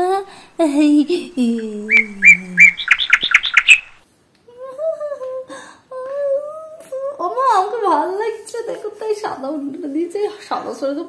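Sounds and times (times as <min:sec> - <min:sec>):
voice gliding down in pitch: 0:00.0 - 0:02.8
wavering hummed tone: 0:00.8 - 0:03.9
birds chirping: 0:00.9 - 0:04.0.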